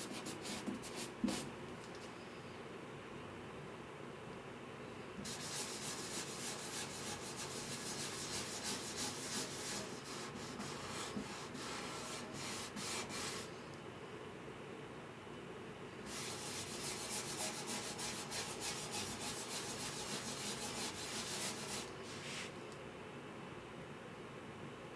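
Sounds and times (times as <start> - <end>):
hand rubbing guitar wood: 5.3 - 13.5, 16.1 - 22.6.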